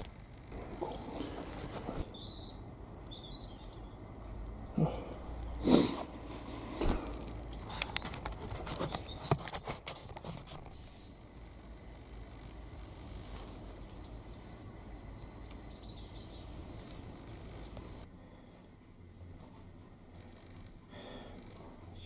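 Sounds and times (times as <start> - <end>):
small bird chirping: 0.4 - 4.3, 6.9 - 9.4, 10.8 - 11.6, 13.2 - 18.0
handling clicks and rustling: 6.4 - 11.0.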